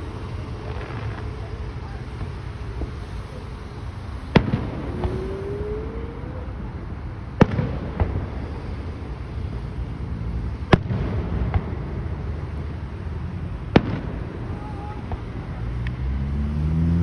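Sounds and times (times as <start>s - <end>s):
faint rising whistle: 0.0s - 7.1s
fireworks booming: 0.0s - 16.7s.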